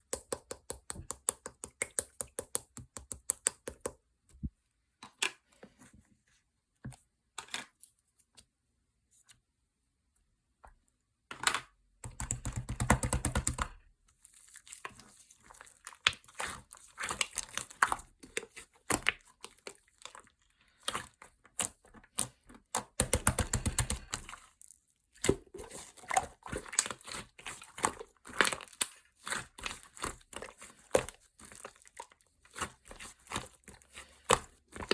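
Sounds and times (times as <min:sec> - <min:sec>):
clicks and taps: 0:00.0 - 0:05.4, 0:11.3 - 0:13.7, 0:21.6 - 0:24.3.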